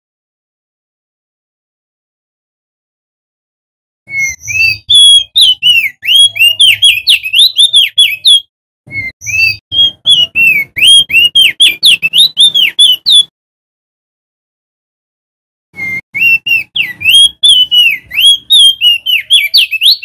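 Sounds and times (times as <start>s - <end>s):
bird singing whistled notes: 4.1s - 13.3s, 15.8s - 20.0s.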